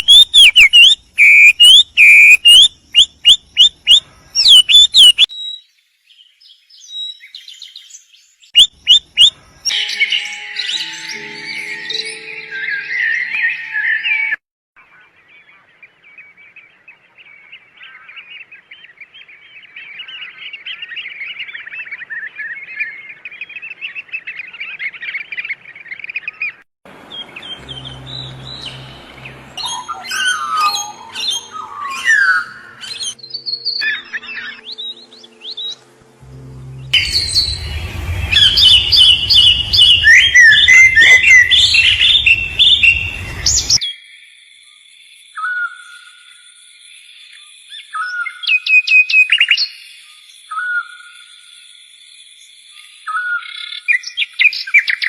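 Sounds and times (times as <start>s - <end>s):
small birds chirping: 0.0s - 10.0s
low steady rumble: 36.0s - 43.8s.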